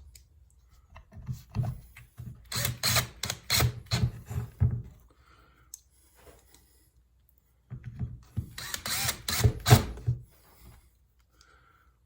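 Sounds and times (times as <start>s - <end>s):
drill-driver driving a screw: 2.5s - 4.2s, 8.5s - 10.1s.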